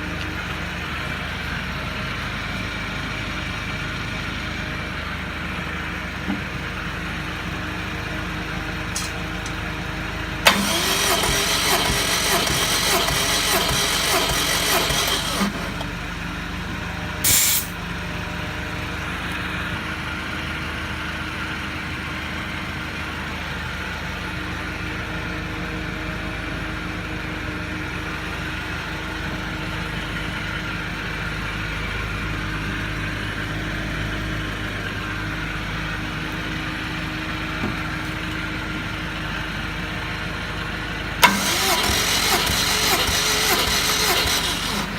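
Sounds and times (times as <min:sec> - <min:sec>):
engine cranking on starter: 0:08.9 - 0:09.6, 0:10.4 - 0:16.0, 0:17.2 - 0:17.8, 0:41.2 - 0:44.9
short hiss of air: 0:17.2 - 0:17.8.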